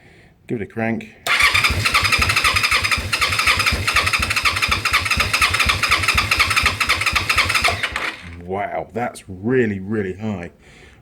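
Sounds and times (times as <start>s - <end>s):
electric starter cranking engine: 1.3s - 8.4s.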